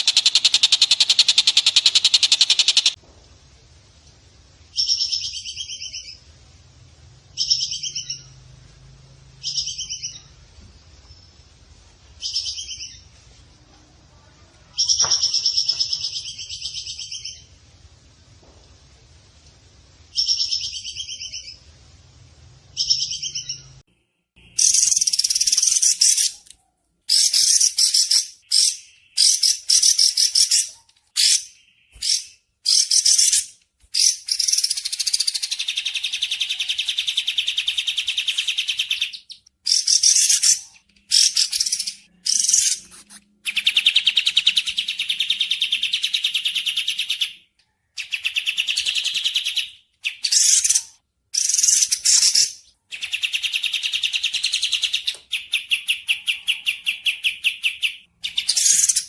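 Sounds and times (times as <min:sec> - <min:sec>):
long fast bird trills: 0:00.0 - 0:03.0
short repeated songbird calls: 0:00.0 - 0:03.0.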